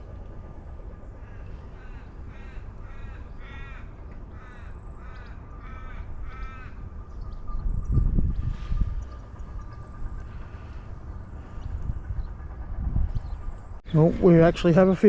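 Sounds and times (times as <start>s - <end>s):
low outdoor rumble: 0.0s - 15.0s
crow cawing: 1.2s - 7.0s.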